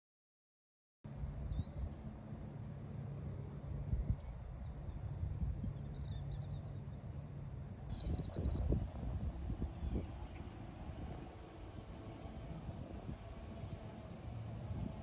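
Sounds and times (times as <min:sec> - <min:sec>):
low wind rumble: 0:01.1 - 0:15.0
faint bird chirps: 0:07.9 - 0:08.8.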